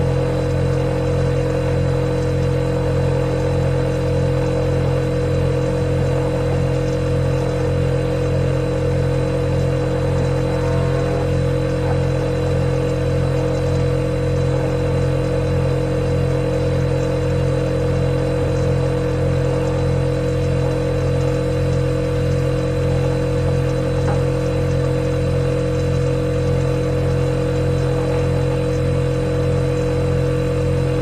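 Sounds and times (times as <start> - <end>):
refrigerator compressor humming: 0.0 - 31.0.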